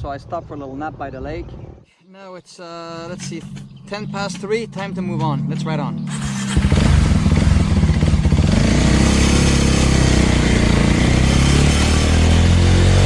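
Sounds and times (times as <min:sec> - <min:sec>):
motorcycle engine accelerating: 0:03.0 - 0:13.0.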